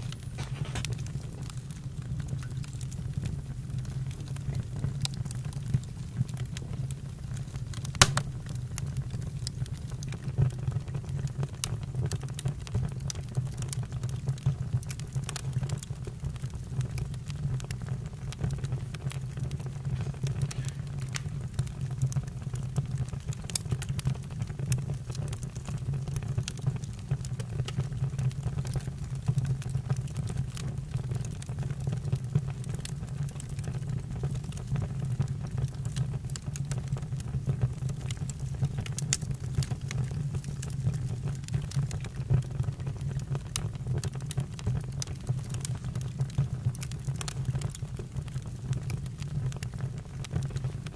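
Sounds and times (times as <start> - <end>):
burning wood crackling: 0.0 - 50.9
low rumble of fire: 0.0 - 50.9.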